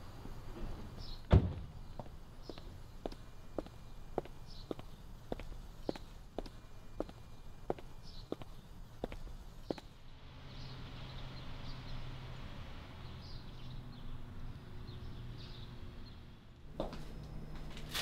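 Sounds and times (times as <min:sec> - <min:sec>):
steady low hum: 0:00.0 - 0:10.3
footstep: 0:00.2 - 0:10.0, 0:16.7 - 0:18.0
small birds chirping: 0:00.9 - 0:12.4, 0:13.0 - 0:16.4.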